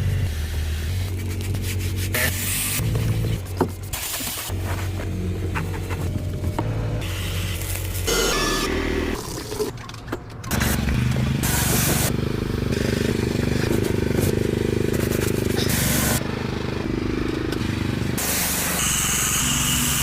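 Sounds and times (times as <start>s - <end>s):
hissing spray bursts: 3.8s - 4.6s, 10.5s - 12.1s, 14.8s - 16.2s, 18.2s - 20.0s
pressure washer engine running: 10.5s - 20.0s.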